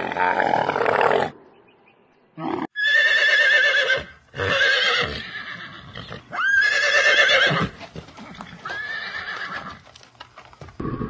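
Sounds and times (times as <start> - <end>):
horse whinnying: 2.4 - 9.8.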